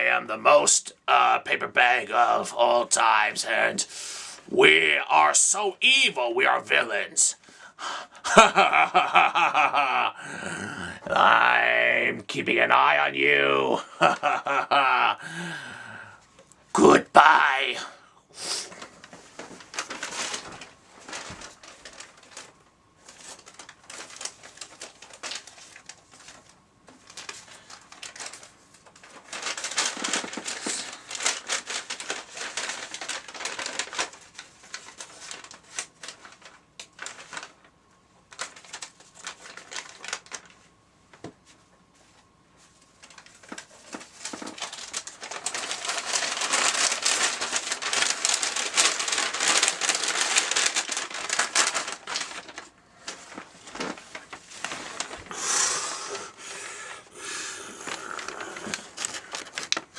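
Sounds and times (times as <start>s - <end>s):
paper bags rustling and crinkling: 18.5s - 56.8s, 57.7s - 59.9s.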